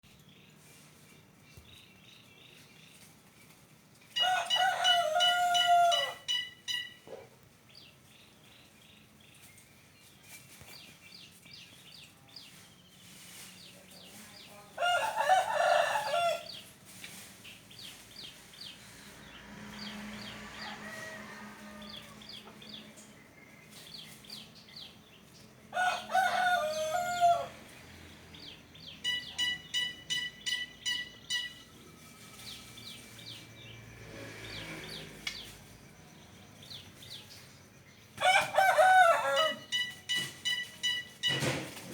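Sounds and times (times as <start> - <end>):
rooster crowing: 4.2 - 6.5, 14.8 - 16.6, 19.7 - 22.8, 25.7 - 27.7, 38.2 - 39.9
faint chirping: 28.8 - 38.1.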